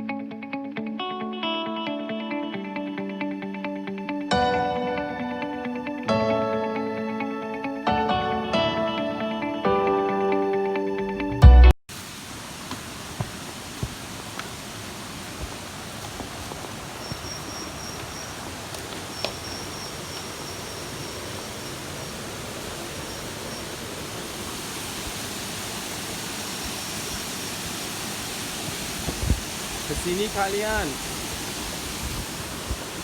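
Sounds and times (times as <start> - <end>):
waterfall roaring: 11.9 - 33.0.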